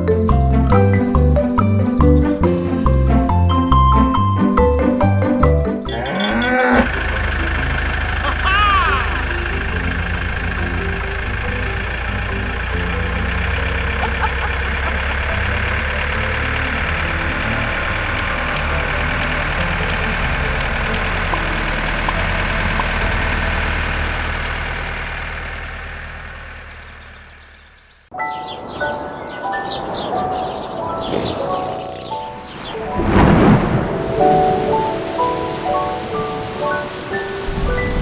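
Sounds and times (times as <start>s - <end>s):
engine running steadily: 6.2s - 28.1s, 33.8s - 38.0s
light ticks: 6.8s - 23.7s.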